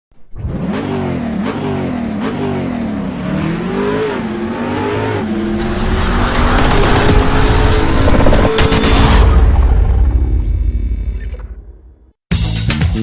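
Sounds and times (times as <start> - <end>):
car engine revving: 0.3 - 11.0
rushing noise: 4.4 - 11.3.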